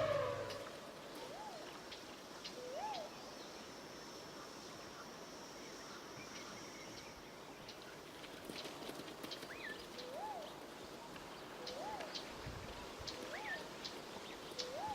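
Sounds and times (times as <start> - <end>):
whistled bird note: 0.0 - 1.6
faint outdoor ambience: 0.0 - 14.9.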